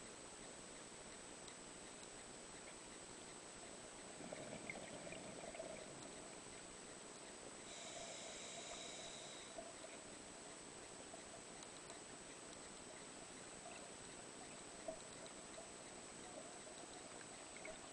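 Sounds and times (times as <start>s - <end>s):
small ticks: 0.4s - 17.9s
underwater hiss: 7.7s - 9.6s.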